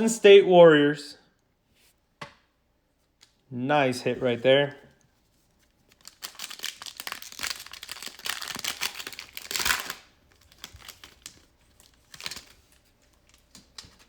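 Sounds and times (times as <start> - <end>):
foil wrapper crinkling and tearing: 5.6 - 14.0.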